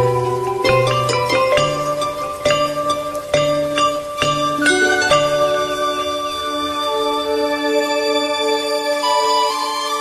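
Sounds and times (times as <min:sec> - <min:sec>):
plucked and mallet instrumental music: 0:00.0 - 0:10.0.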